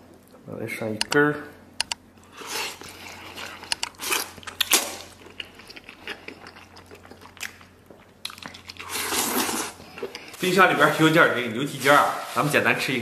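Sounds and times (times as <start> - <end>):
person chewing wetly: 2.2 - 10.4.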